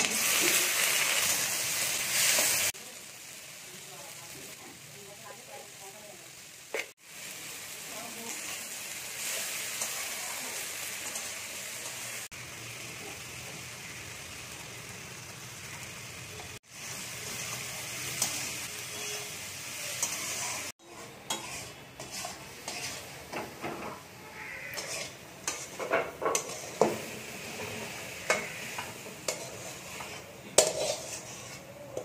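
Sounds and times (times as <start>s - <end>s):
vegetables sizzling in a pan: 0.0s - 32.0s
metal spatula scraping a pan: 17.5s - 32.0s.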